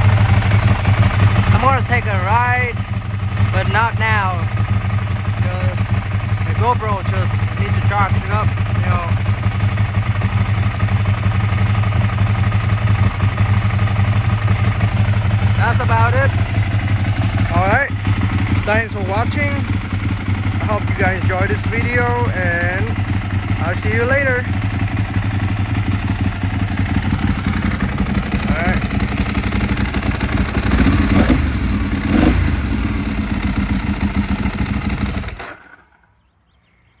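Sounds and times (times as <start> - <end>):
motorcycle engine idling: 0.0 - 36.3
clutch clatter: 23.0 - 36.0.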